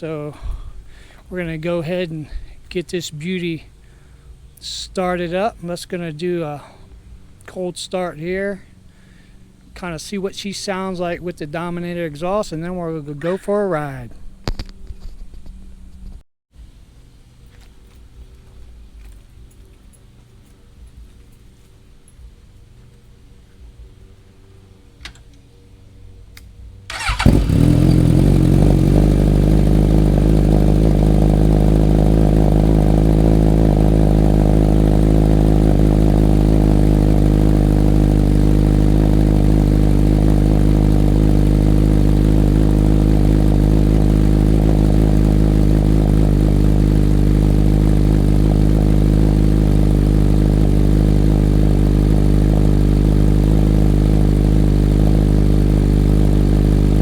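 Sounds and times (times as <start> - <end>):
motorcycle engine starting and idling: 0.0 - 10.1, 26.8 - 57.0.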